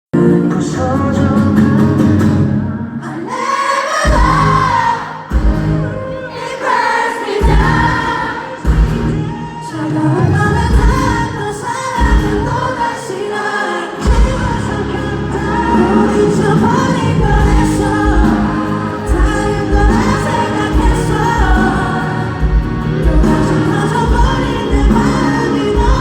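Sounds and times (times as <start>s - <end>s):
pop-rock band playing live: 0.2s - 26.0s
drum hits: 4.1s - 5.9s, 7.4s - 9.3s
person singing: 5.9s - 26.0s.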